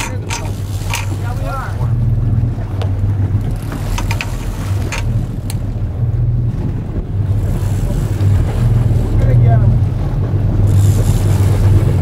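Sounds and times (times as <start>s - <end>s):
sharp clicks and knocks: 0.0s - 1.3s, 2.8s - 5.6s
boat engine running: 0.0s - 12.0s
wind on microphone: 0.0s - 12.0s.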